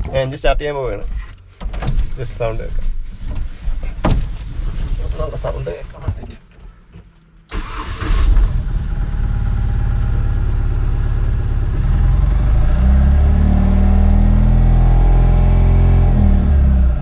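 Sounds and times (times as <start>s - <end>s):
truck engine idling and revving: 7.6s - 17.0s.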